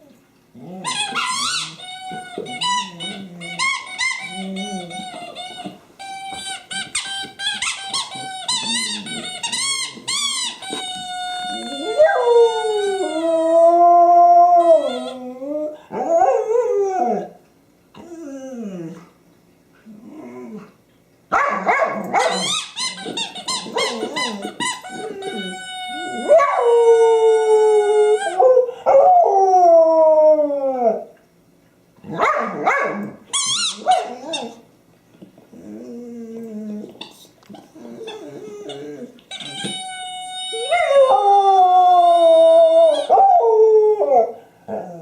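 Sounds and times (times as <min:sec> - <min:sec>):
dog yipping: 0:00.8 - 0:05.8, 0:21.3 - 0:26.7, 0:32.2 - 0:34.6
squeaky toy squeaking: 0:00.8 - 0:13.5, 0:14.8 - 0:15.2, 0:22.3 - 0:26.5, 0:28.0 - 0:28.4, 0:33.3 - 0:34.6, 0:38.0 - 0:40.9
dog howling: 0:11.4 - 0:17.4, 0:23.7 - 0:31.1, 0:40.5 - 0:45.0.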